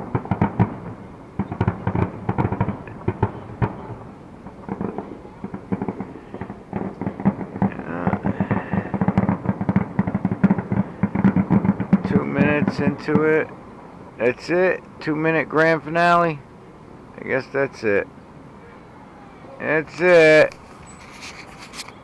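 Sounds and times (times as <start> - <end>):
fireworks bursting: 0.0 - 13.8.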